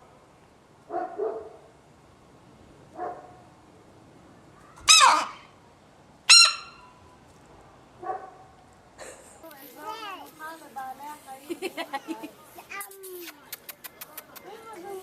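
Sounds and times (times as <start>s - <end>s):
bird squawking: 4.8s - 5.5s, 6.3s - 7.0s.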